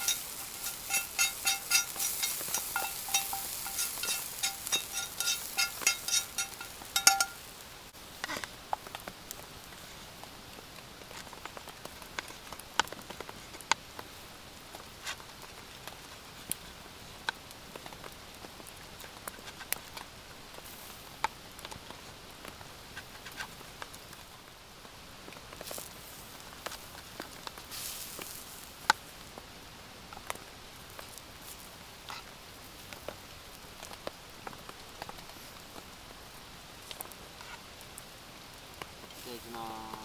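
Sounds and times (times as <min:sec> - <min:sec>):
raindrops tapping: 0:00.0 - 0:07.6
steady rain: 0:00.0 - 0:14.9, 0:24.6 - 0:40.0.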